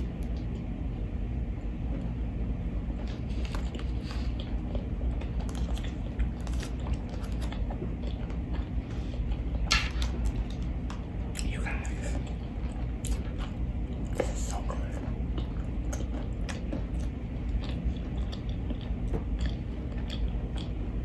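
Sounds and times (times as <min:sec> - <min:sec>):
chewing sandwich: 0:00.0 - 0:21.0
steady low hum: 0:00.0 - 0:21.0.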